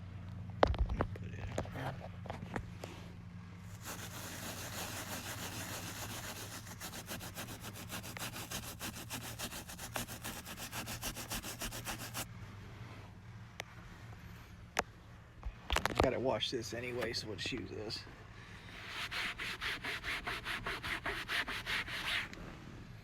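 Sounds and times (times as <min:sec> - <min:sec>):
cloth scrubbing fabric seat: 0:03.7 - 0:12.3, 0:18.7 - 0:22.3.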